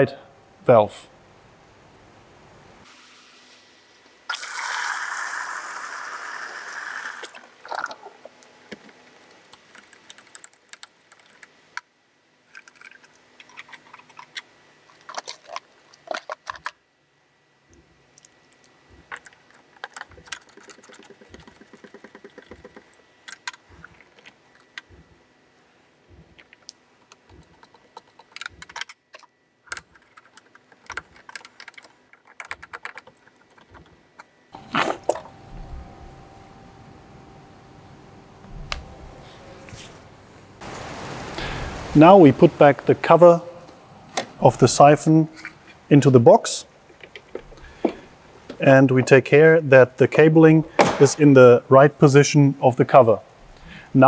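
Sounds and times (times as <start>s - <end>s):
plastic parts clicking and tapping: 12.5s - 16.8s, 18.9s - 25.1s, 26.1s - 34.3s, 46.9s - 48.6s.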